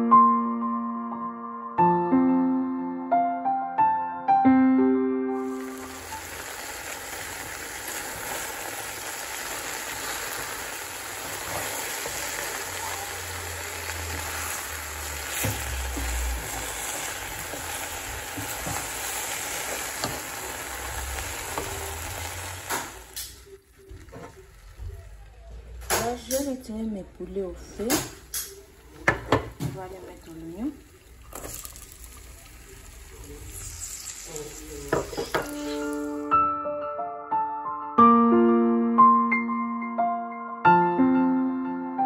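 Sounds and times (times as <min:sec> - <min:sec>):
chicken sizzling in hot oil: 0:05.4 - 0:26.6, 0:27.8 - 0:36.3.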